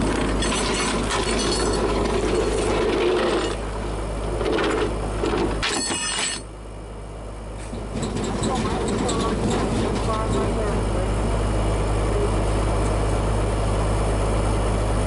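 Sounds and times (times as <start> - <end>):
low engine hum: 0.0 - 5.7, 6.4 - 15.0
rattling metallic clicks and squeaks: 7.7 - 10.6.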